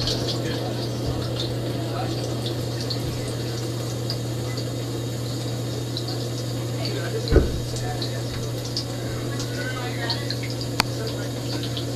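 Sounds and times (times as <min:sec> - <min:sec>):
dishwasher pump hum: 0:00.0 - 0:11.9
water spraying: 0:00.0 - 0:11.9.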